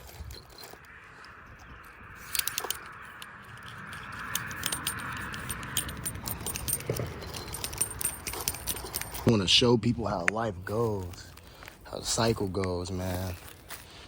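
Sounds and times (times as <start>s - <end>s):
light clicking and rattling: 0.0s - 9.6s.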